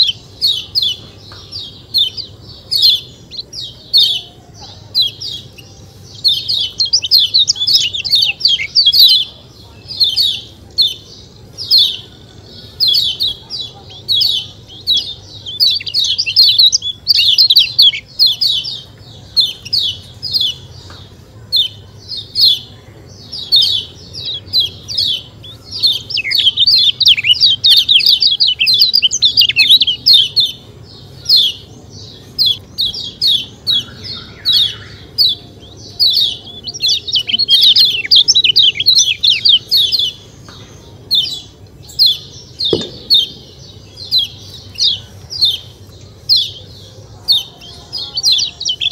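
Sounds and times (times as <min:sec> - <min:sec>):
bird chirping high and sharp: 0:23.3 - 0:40.5, 0:41.1 - 0:46.7
dull knock: 0:42.7 - 0:43.4.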